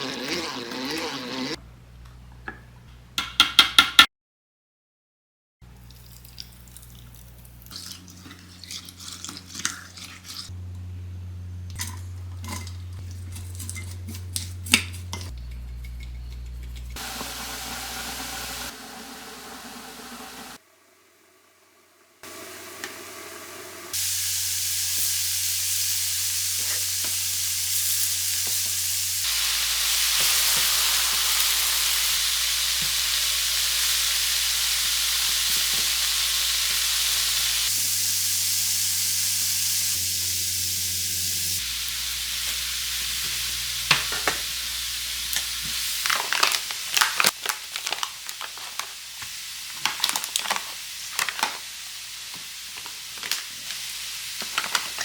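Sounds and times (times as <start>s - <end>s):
loud steady hiss: 17.0s - 20.6s, 22.2s - 46.8s.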